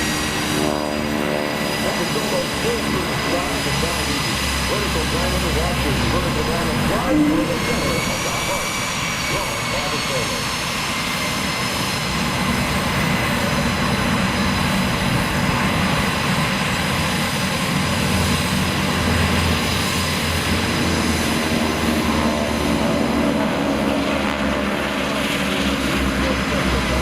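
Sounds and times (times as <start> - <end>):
aircraft engines roaring: 0.0 - 27.0.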